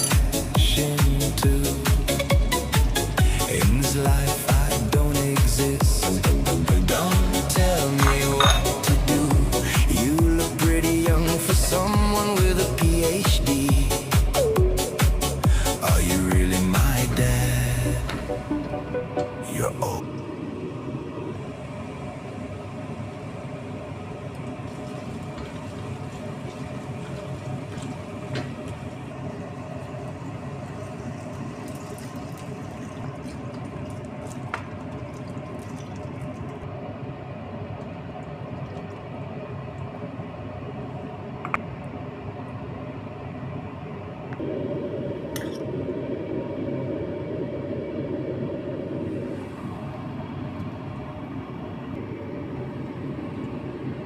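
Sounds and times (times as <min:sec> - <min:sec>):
sauce simmering in a pan: 0:21.4 - 0:40.6.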